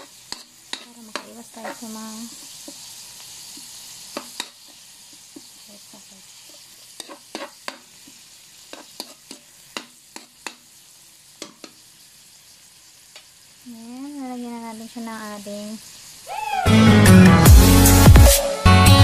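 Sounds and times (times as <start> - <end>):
spatula clicking and scraping pan: 0.0 - 2.9, 3.5 - 5.5, 6.4 - 10.7, 11.4 - 11.8
meat sizzling in a wok: 0.0 - 18.4.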